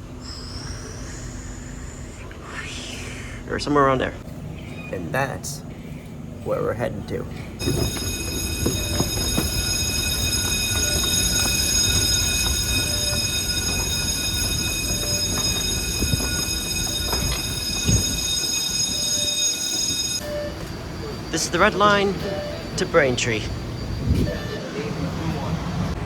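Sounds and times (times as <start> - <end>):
subway train low rumble: 0.0 - 26.0
high-pitched whining tones: 7.6 - 25.9.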